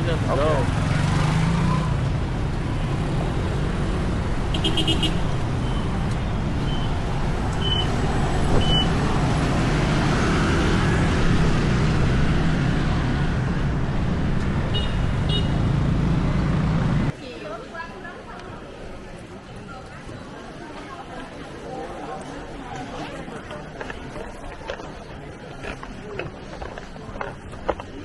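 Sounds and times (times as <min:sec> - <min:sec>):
road traffic: 0:00.0 - 0:28.0.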